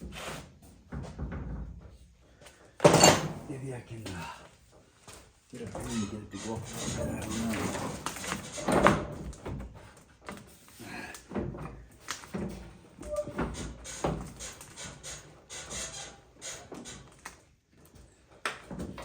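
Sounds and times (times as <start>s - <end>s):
metal door clunking on hinges: 2.8s - 3.5s, 5.7s - 9.7s.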